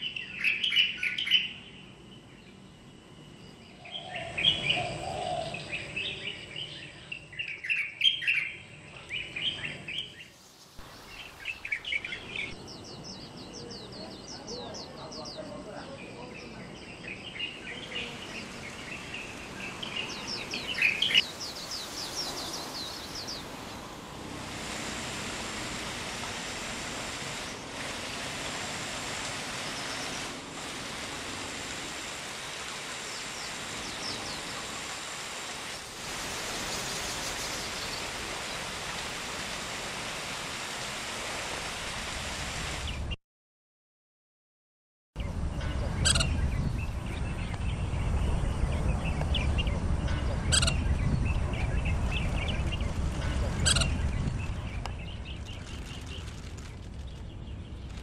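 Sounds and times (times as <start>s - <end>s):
bird singing high trills: 0.0s - 23.8s, 45.6s - 52.9s, 53.5s - 55.6s
steady rushing noise: 10.3s - 43.2s, 45.2s - 58.0s.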